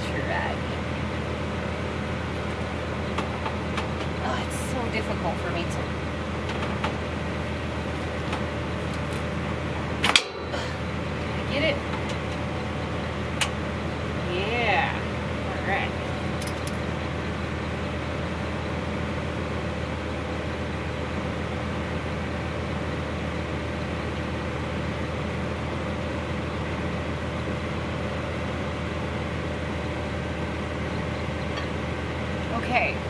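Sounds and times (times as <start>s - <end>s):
engine humming steadily: 0.0s - 33.0s.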